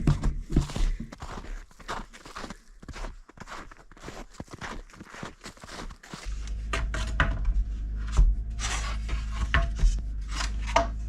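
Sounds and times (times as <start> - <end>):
steady low hum: 5.8 - 11.0.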